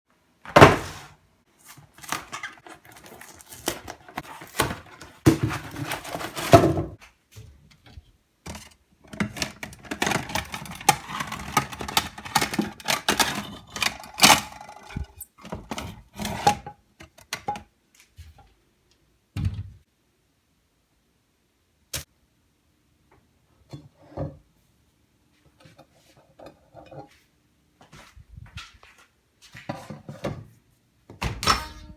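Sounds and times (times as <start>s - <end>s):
packaging crinkling and knocking: 1.7s - 7.0s, 9.1s - 15.1s.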